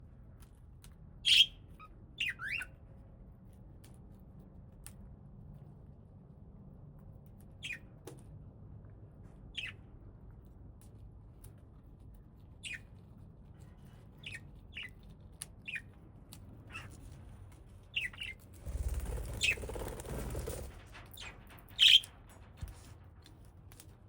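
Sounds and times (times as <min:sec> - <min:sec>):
parrots chirping: 0:01.2 - 0:02.8
rustling fluttering noise: 0:18.4 - 0:23.9.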